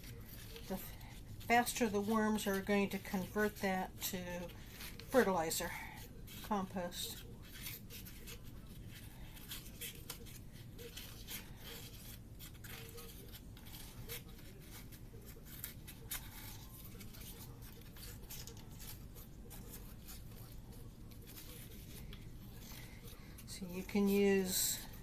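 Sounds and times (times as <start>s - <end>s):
scissors cutting cardboard: 6.0s - 25.0s.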